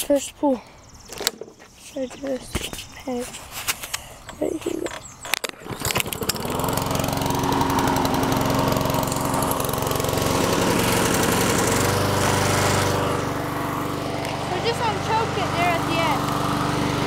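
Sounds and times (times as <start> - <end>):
lawn mower engine starting and running: 3.9 - 17.0.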